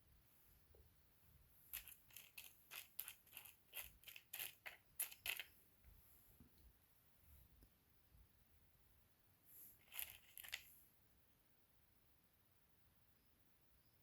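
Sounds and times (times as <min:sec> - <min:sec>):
small stone chips clicking: 0:01.8 - 0:05.5, 0:09.8 - 0:10.7.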